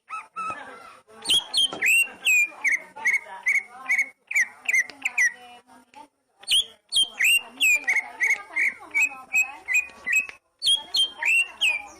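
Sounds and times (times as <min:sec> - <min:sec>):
songbird whistling and chirping: 0:01.2 - 0:05.4, 0:06.4 - 0:11.9.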